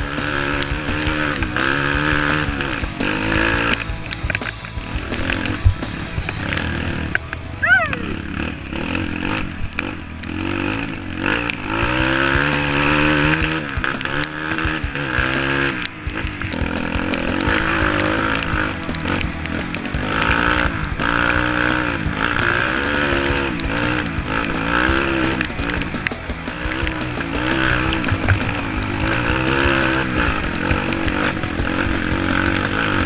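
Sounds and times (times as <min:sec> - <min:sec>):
motor engines revving: 0:00.0 - 0:33.0.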